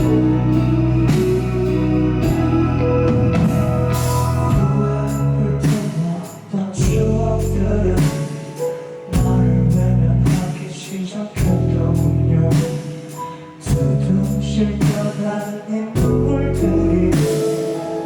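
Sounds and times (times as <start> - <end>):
live rock band: 0.0 - 7.1.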